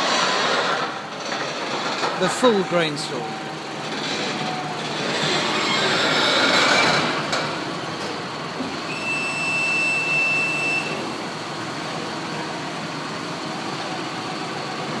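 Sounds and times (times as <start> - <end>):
farm machinery running: 0.0 - 9.5.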